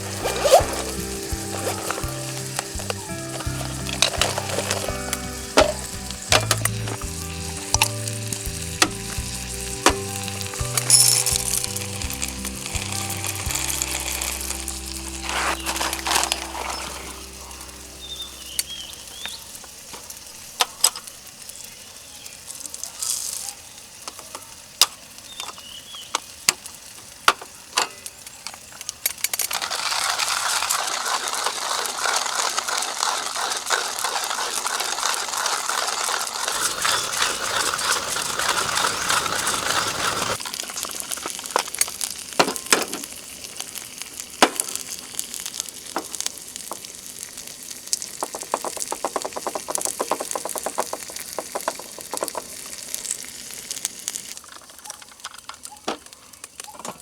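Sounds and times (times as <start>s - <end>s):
sharp pops: 0.0s - 13.7s, 44.2s - 54.0s
food sizzling in a pan: 0.0s - 54.9s.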